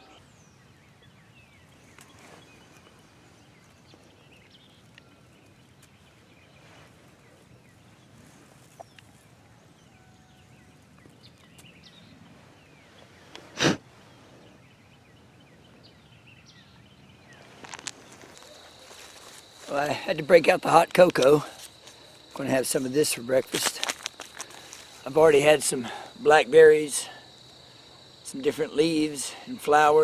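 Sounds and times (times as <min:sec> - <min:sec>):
faint bird chirps: 0:00.0 - 0:13.4.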